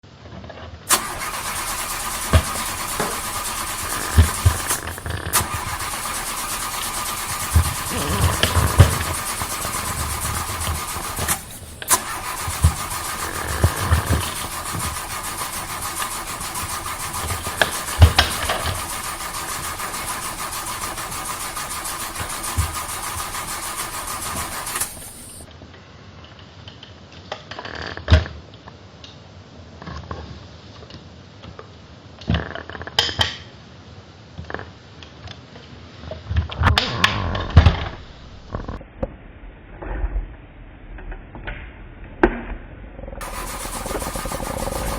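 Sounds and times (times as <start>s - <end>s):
car engine cranking: 0.9s - 25.4s, 43.2s - 44.9s.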